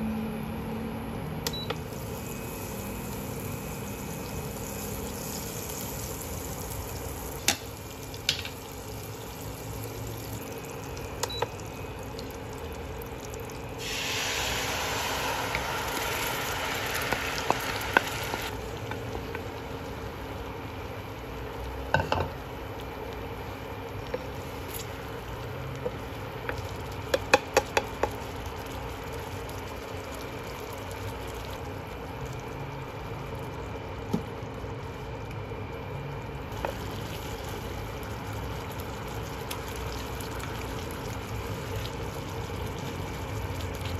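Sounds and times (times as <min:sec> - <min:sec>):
butter sizzling in a frying pan: 0:01.8 - 0:20.2, 0:36.5 - 0:43.9
sauce bubbling: 0:01.8 - 0:43.9.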